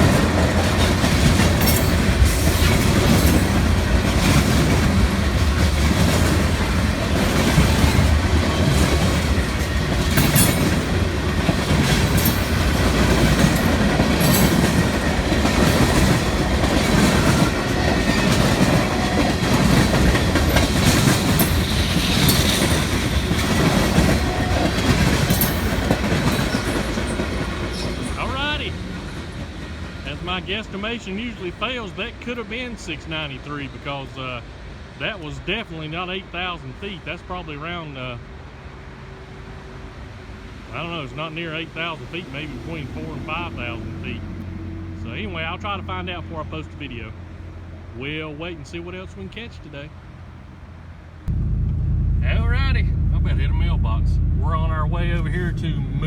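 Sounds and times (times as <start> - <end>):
wheels clattering over rail joints: 0.0 - 30.1
freight train rumbling past: 0.0 - 56.0.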